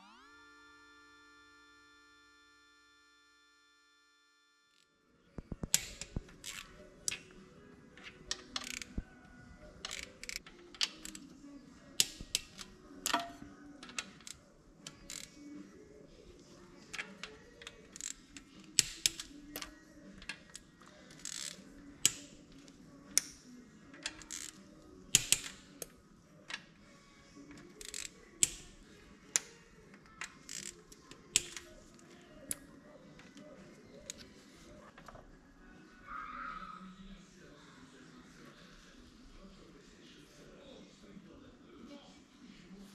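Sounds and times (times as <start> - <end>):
faint background music: 0.0 - 42.9
metallic clicks of tools: 8.3 - 9.0, 30.2 - 31.7.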